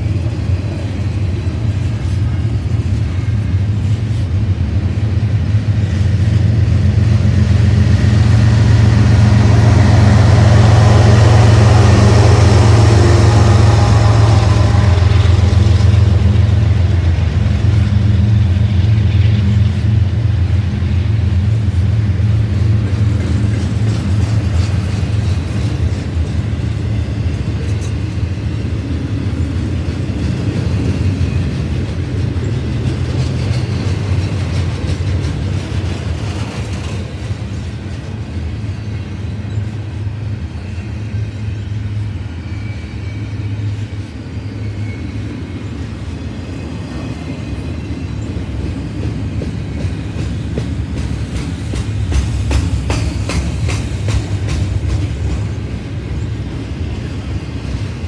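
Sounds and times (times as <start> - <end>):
diesel locomotive drone: 0.0 - 58.0
steel wheels rumbling on rail: 0.0 - 58.0.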